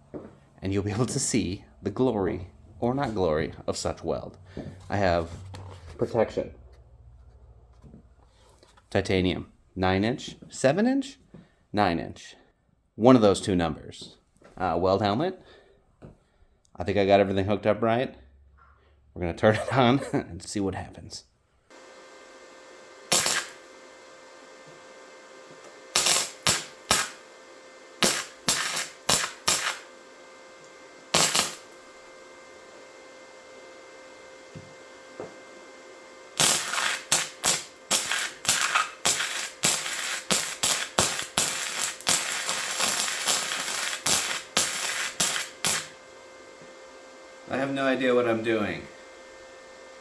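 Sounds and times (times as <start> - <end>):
faint steady hum: 13.7 - 50.0
welder arc crackling: 23.1 - 23.7, 25.9 - 27.4, 28.0 - 30.0, 31.1 - 31.9, 36.4 - 46.2.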